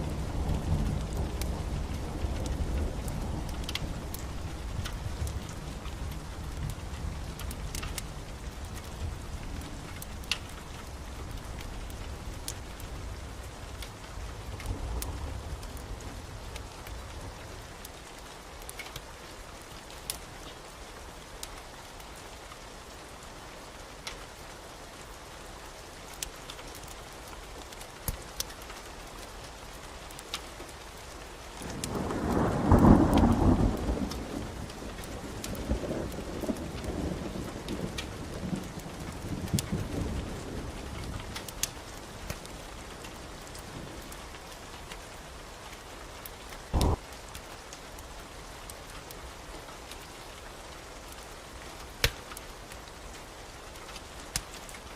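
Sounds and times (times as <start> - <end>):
fireplace fire crackling: 0.0 - 54.9
steady rain: 0.0 - 54.9
thunder rumble: 46.8 - 47.1.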